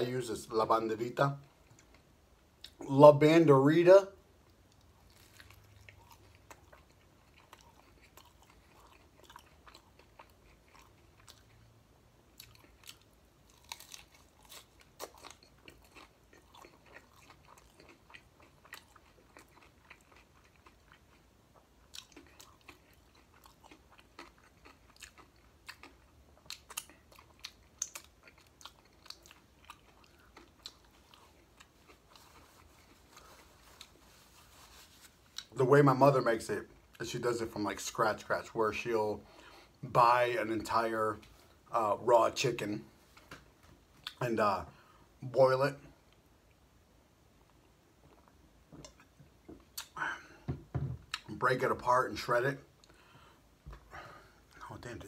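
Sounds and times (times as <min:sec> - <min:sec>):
faint chewing: 0:04.4 - 0:35.6, 0:47.4 - 0:50.4
crunches of crisp taco shell: 0:04.7 - 0:11.6, 0:12.4 - 0:21.1.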